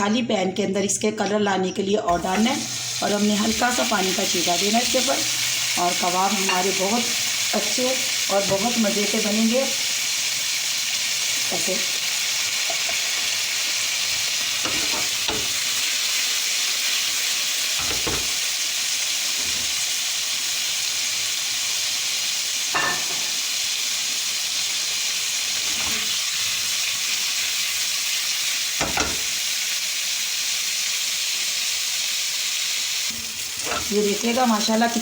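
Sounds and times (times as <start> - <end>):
meat sizzling in a pan: 2.2 - 35.0
knocks in a pan: 17.8 - 18.4, 28.8 - 29.3.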